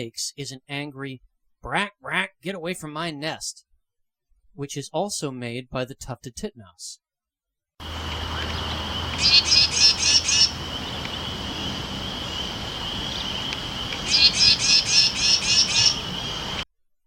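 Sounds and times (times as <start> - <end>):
wren harsh scold call: 7.8 - 16.6.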